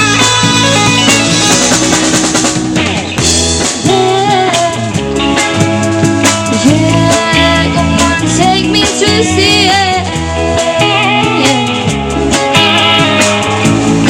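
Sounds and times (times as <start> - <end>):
bass notes: 0.0 - 14.0
drum kit: 0.0 - 14.0
melodic guitar line: 0.0 - 14.0
rock band playing: 0.0 - 14.0.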